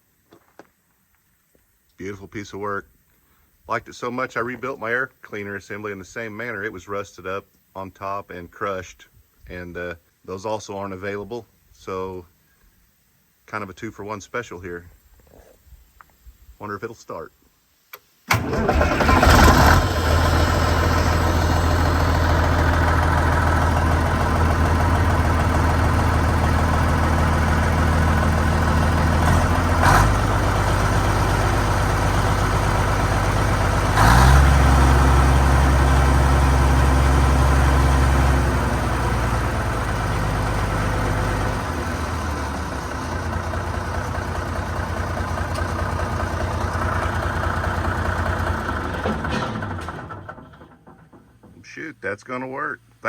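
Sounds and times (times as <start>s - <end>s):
diesel bulldozer engine running: 18.3s - 51.6s.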